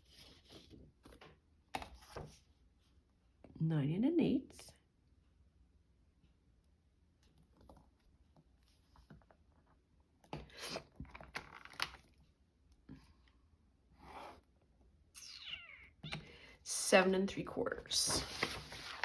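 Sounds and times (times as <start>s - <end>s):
paper rustling and crinkling: 17.8s - 19.0s.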